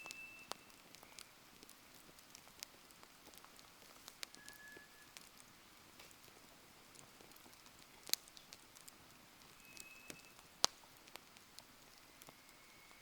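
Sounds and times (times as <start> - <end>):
thin high whistle: 0.0 - 1.4, 4.3 - 5.2, 9.6 - 10.5, 12.0 - 13.0
faint fire hiss: 0.0 - 13.0
wood fire crackling and popping: 0.0 - 13.0.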